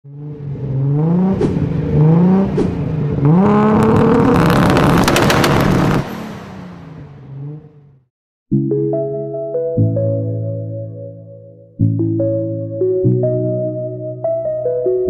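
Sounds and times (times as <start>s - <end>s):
car engine revving: 0.1s - 8.1s
exhaust crackles: 0.3s - 8.0s.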